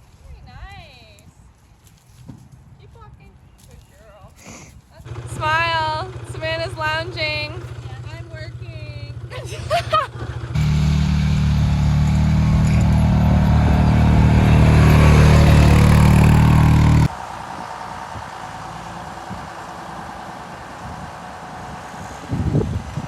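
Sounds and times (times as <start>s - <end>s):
quiet steady rumble: 5.0s - 17.1s
vehicle engine running loud: 5.0s - 23.0s.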